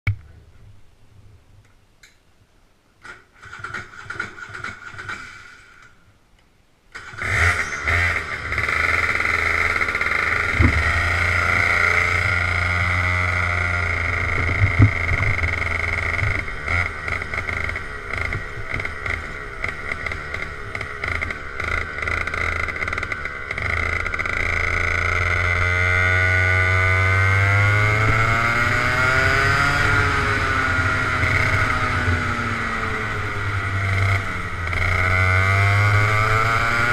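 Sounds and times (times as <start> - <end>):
go-kart engine running: 3.4 - 5.8, 7.0 - 36.9.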